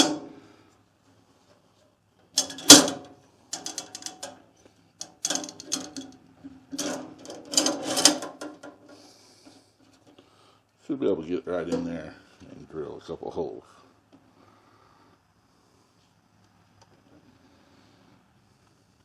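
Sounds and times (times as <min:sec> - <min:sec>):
metal parts and tools clanking: 0:00.0 - 0:00.3, 0:02.3 - 0:09.0.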